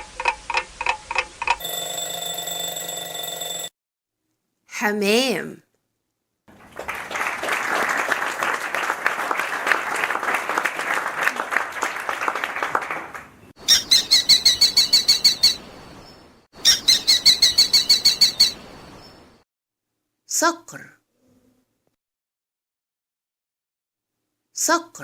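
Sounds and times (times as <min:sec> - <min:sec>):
rapid high-pitched bird calls: 0:13.6 - 0:19.2.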